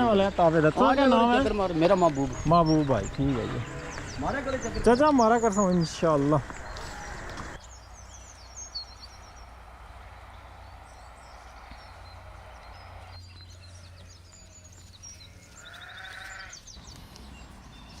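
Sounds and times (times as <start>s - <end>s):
goat or sheep bleating: 6.4s - 7.4s, 15.4s - 16.6s.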